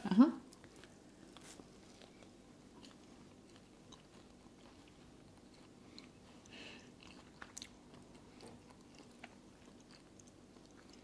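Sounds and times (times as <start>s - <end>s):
chewing soft pizza: 0.5s - 11.0s.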